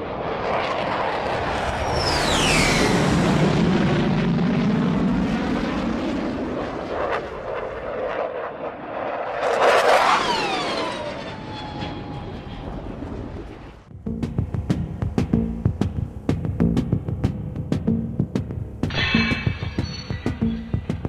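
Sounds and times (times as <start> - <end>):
jet aircraft flying past: 0.0 - 14.0.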